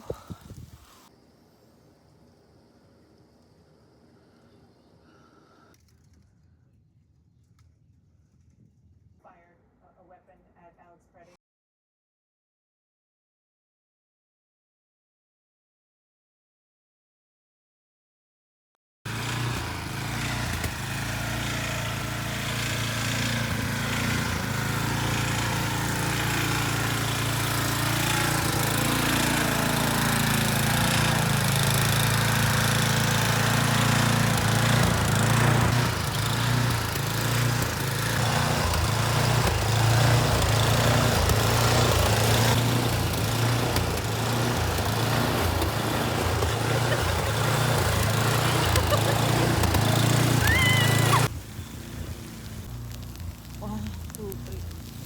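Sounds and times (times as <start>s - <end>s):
snowblower engine running: 19.1s - 55.0s.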